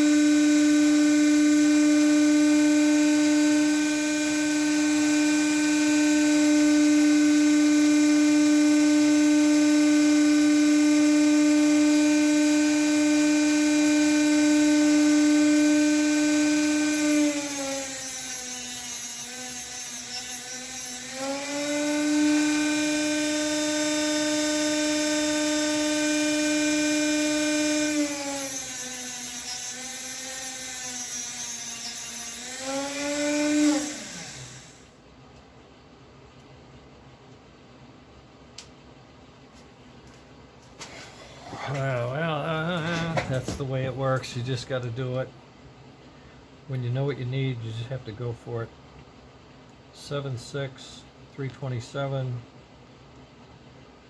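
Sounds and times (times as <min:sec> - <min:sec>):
rotary grinding tool whine: 0:00.0 - 0:34.9.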